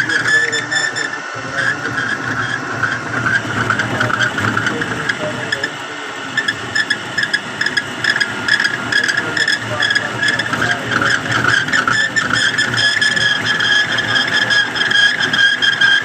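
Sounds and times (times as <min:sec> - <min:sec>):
machine high whine: 0:00.0 - 0:16.0.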